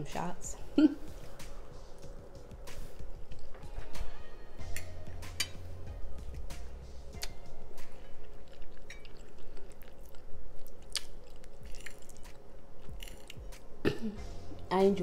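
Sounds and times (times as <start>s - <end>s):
person chewing: 7.2s - 13.7s.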